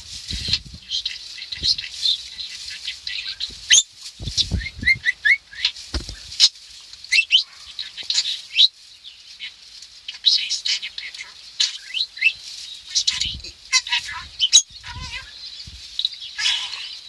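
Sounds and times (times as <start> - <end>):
budgerigar chattering and warbling: 13.0 - 15.3, 16.4 - 17.0.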